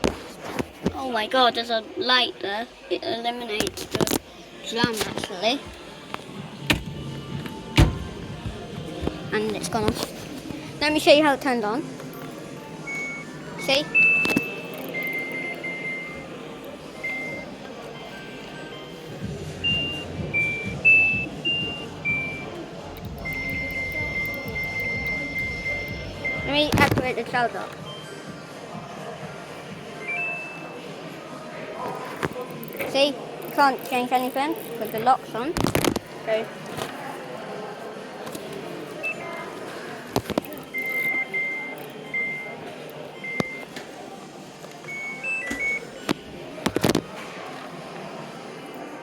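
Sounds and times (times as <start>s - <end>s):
appliance control panel beeps: 12.9s - 16.4s, 17.0s - 19.0s, 19.6s - 26.9s, 30.0s - 30.8s, 39.0s - 39.5s, 40.5s - 42.6s, 43.2s - 43.8s, 44.9s - 46.0s.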